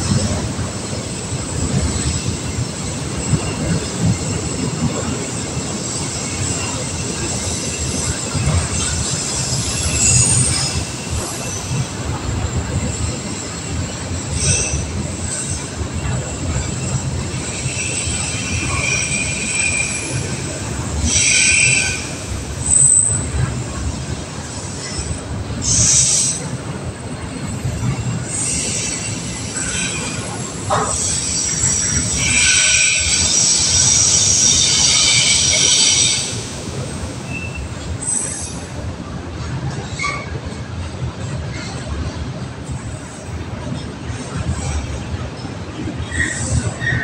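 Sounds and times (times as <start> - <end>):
train wheels rumbling on rails: 0.0 - 47.0
high-pitched wheel squeals: 17.4 - 23.3, 27.8 - 36.4.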